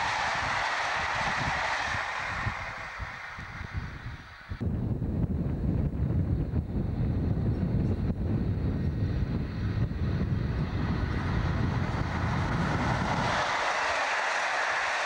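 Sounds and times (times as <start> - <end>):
train rushing past: 0.0 - 4.8, 9.5 - 15.0
wind rumble on microphone: 0.0 - 15.0.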